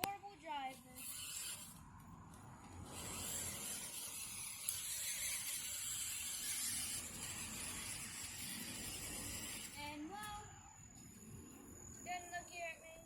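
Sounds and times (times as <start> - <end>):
toy car drivetrain whirring: 0.6 - 1.8, 2.6 - 10.5.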